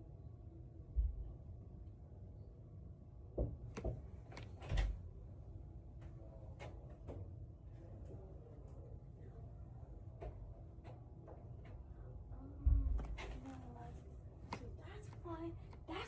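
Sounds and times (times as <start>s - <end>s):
low steady rumble: 11.6s - 16.0s.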